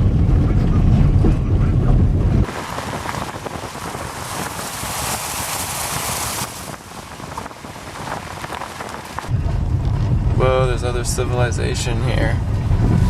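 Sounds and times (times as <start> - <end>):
rain falling: 2.4 - 9.3.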